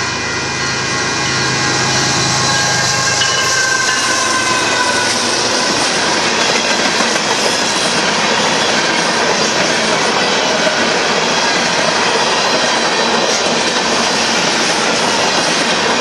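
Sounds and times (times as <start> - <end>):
freight cars rolling past: 0.0 - 13.0.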